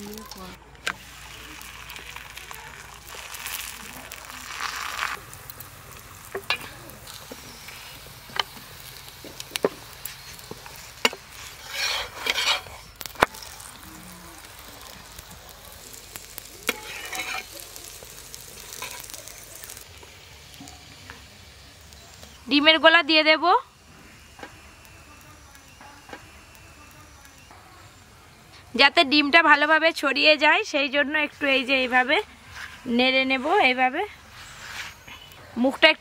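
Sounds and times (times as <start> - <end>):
flatbread sizzling in oil: 0.0 - 36.0
metal spatula scraping pan: 10.1 - 13.0, 16.6 - 17.5.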